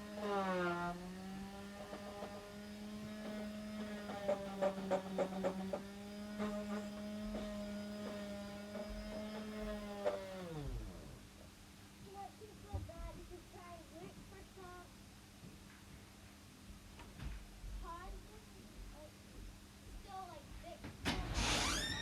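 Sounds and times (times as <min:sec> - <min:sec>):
electric sander motor humming: 0:00.0 - 0:11.2.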